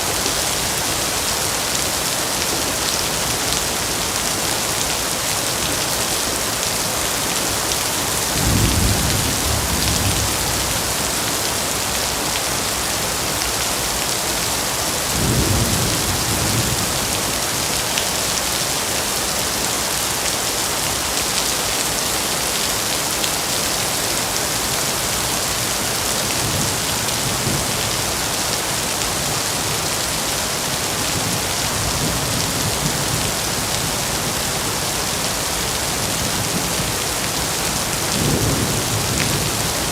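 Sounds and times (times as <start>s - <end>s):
heavy rain: 0.0s - 39.9s
thunder rumbling: 8.4s - 11.2s.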